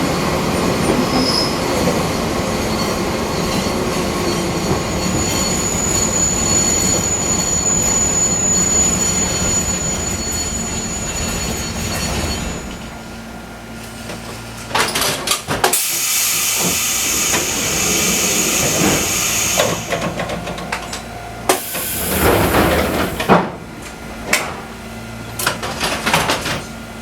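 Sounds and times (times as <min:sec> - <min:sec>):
compressed air hissing: 0:15.8 - 0:20.1, 0:21.5 - 0:23.3.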